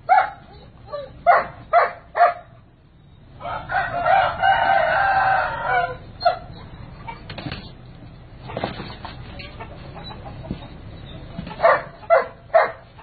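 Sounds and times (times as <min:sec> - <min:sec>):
rooster crowing: 0:03.4 - 0:06.5.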